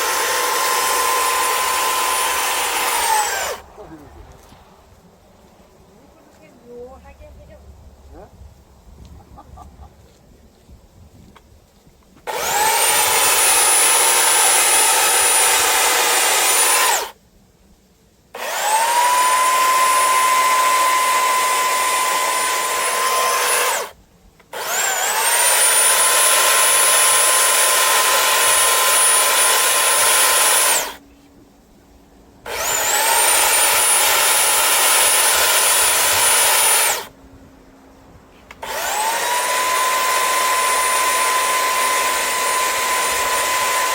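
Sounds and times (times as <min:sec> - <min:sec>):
power tool motor whining: 0:00.0 - 0:03.7, 0:12.2 - 0:17.2, 0:18.4 - 0:31.0, 0:32.4 - 0:37.1, 0:38.5 - 0:43.9.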